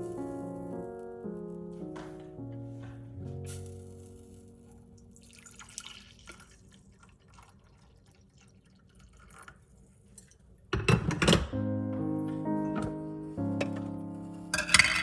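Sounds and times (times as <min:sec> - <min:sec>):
faint dripping water: 0:04.7 - 0:10.7
sustained music chord: 0:11.6 - 0:14.6.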